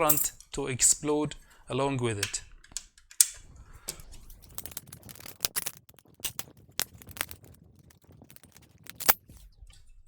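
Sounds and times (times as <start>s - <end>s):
tools and parts clicking: 0.0s - 0.6s, 2.2s - 7.6s, 8.2s - 9.4s.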